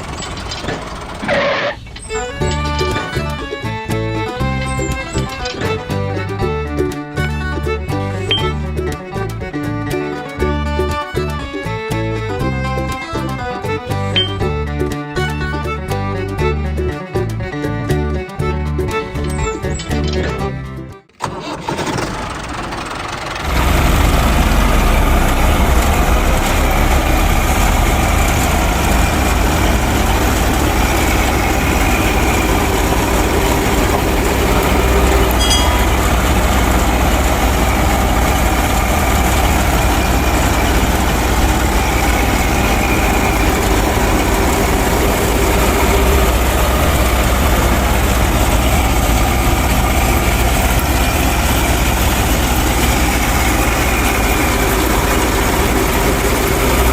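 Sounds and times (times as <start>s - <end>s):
machine motor running: 0.0s - 6.0s, 22.4s - 56.9s.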